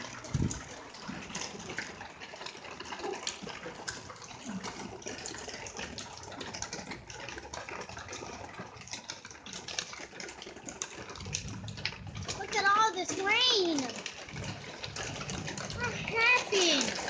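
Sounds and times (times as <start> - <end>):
heavy rain falling: 0.0 - 5.3, 10.7 - 17.0.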